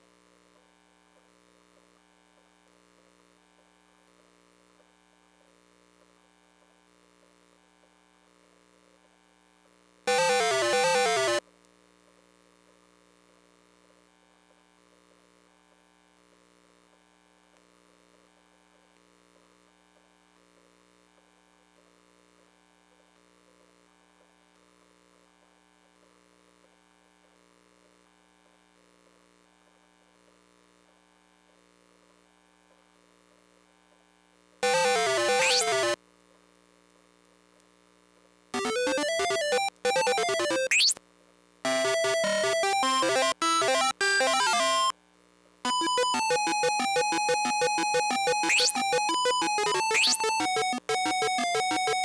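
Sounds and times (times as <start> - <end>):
warbling electronic jingles: 45.7 - 52.0.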